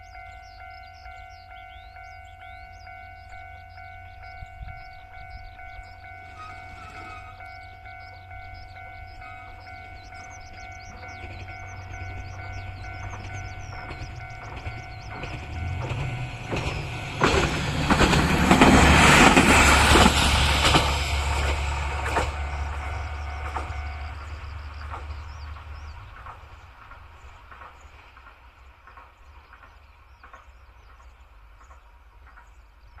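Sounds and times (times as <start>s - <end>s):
crossing warning bell ringing: 0.0s - 25.0s
diesel railcar engine rumble: 0.0s - 33.0s
wheels clacking over rail joints: 5.7s - 33.0s.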